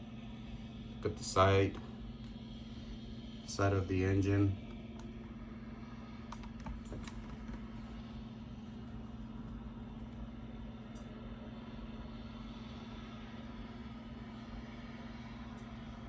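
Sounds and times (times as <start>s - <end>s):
steady low hum: 0.0s - 16.0s
faint clicks and taps: 6.3s - 7.7s.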